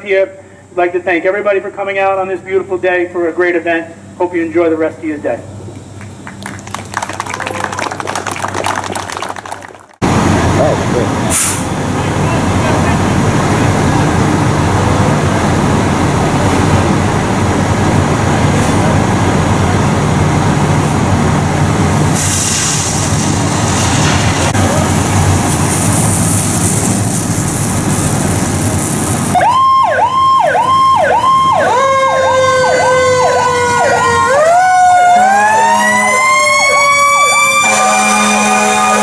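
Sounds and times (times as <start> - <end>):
fire engines rumbling: 0.0 - 39.0
sirens yelping and wailing: 29.4 - 39.0.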